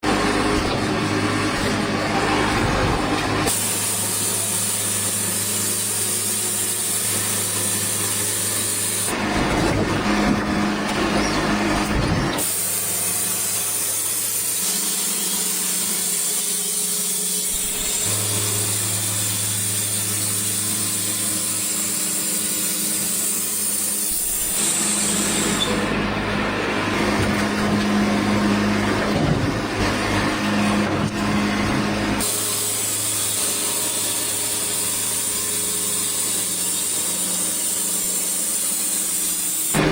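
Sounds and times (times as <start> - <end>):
sawmill engine hum: 0.0 - 39.9
saw blade cutting hiss: 3.5 - 9.1, 12.4 - 25.8, 32.2 - 39.8.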